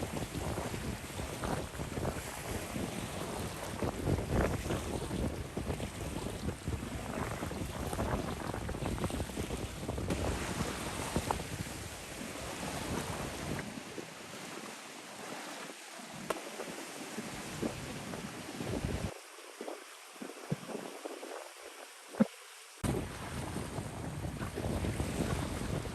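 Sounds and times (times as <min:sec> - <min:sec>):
wind buffeting microphone: 0:00.0 - 0:13.7, 0:17.2 - 0:19.2, 0:22.8 - 0:25.9.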